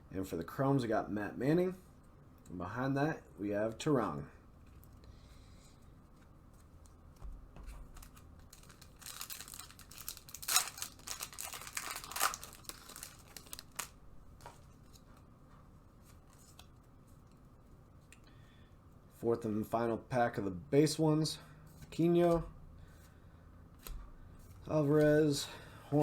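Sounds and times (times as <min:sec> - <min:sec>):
wrapper tearing and crinkling: 0:08.0 - 0:14.0.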